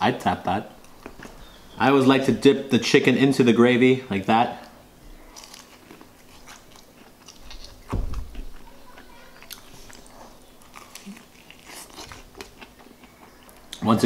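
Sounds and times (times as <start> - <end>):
chewing fried chicken: 4.6 - 13.9
low thump: 7.9 - 8.4.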